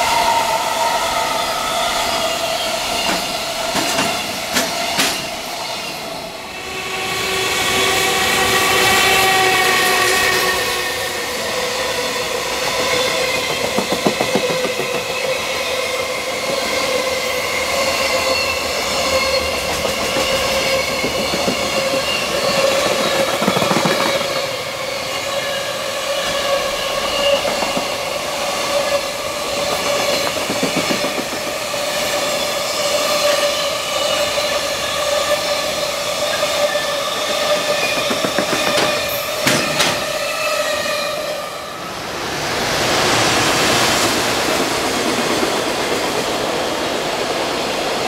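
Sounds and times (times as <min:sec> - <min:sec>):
train rail roar: 0:00.0 - 0:48.0
ringing tone from wheels and rails: 0:12.9 - 0:31.0.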